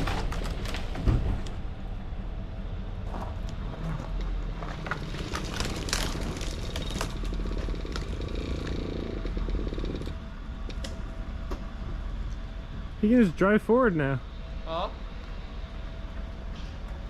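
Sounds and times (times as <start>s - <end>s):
cracks and clatter: 0.0s - 1.5s, 3.4s - 11.0s
truck engine running: 0.0s - 17.0s.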